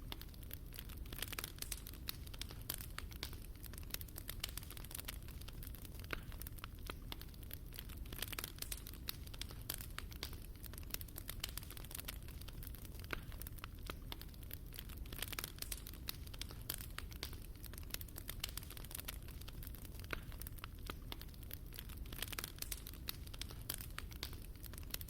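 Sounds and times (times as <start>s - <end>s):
fire crackling and popping: 0.0s - 25.0s
low fire rumble: 0.0s - 25.0s.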